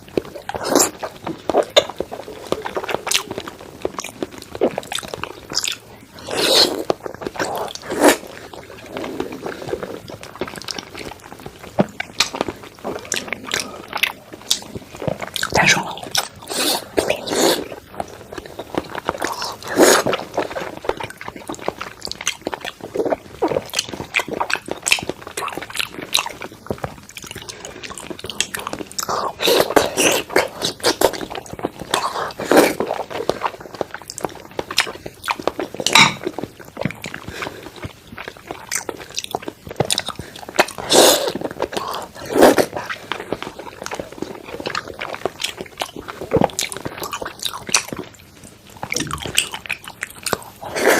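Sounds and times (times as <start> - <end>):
wet chewing and mouth clicks: 0.0 - 50.9
loud bite: 48.9 - 49.6.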